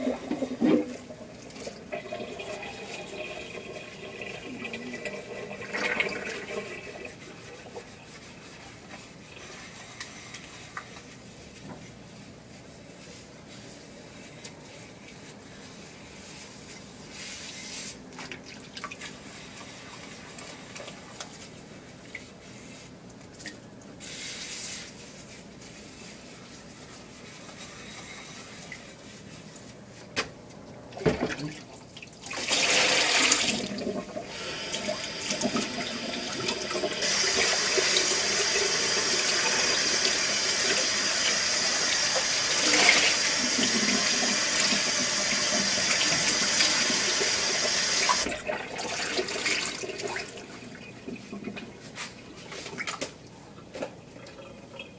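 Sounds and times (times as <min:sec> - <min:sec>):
water spraying in dishwasher: 0:00.0 - 0:11.9, 0:32.2 - 0:53.2.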